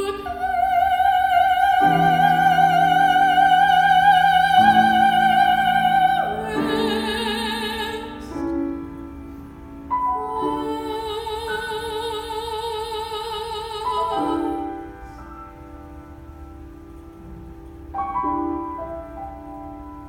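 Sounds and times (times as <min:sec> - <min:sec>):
soprano singing with vibrato: 0:00.0 - 0:09.2, 0:09.9 - 0:15.6
piano: 0:00.0 - 0:20.0.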